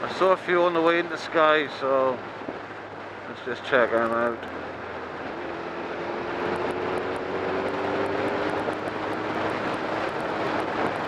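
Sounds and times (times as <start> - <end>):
rush of wind: 0.0 - 11.0
motorcycle engine running: 4.0 - 11.0.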